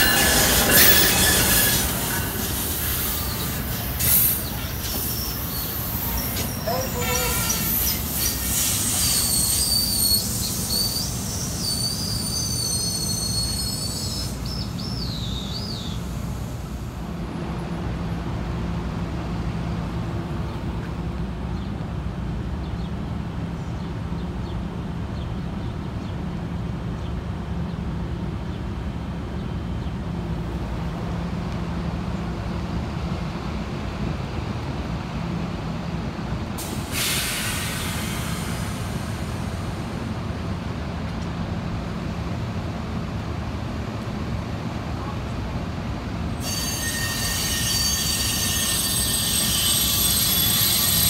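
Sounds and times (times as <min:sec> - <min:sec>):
train brakes squealing: 0:00.0 - 0:17.0, 0:36.6 - 0:39.8, 0:46.3 - 0:51.0
standing train humming: 0:00.0 - 0:51.0.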